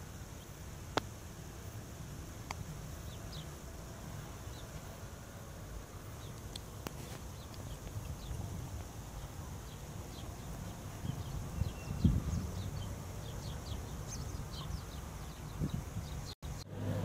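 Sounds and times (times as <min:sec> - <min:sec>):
small birds chirping: 0:00.0 - 0:16.7
wind rumble on microphone: 0:05.9 - 0:17.0.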